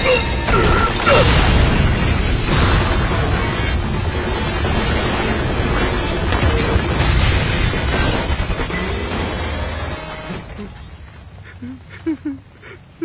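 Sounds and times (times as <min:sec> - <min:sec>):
dramatic music: 0:00.0 - 0:10.5
rumbling and crashing booms: 0:00.2 - 0:09.8.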